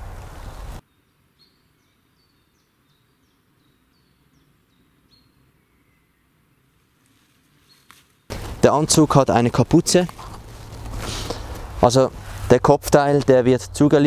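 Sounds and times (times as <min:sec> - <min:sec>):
loud rustling: 0:08.3 - 0:12.5.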